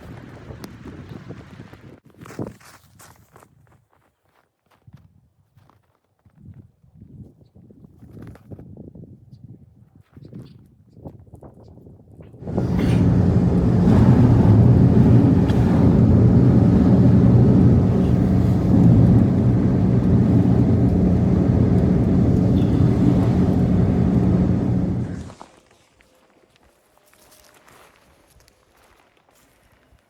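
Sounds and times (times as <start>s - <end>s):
engine running steadily: 12.4s - 25.4s.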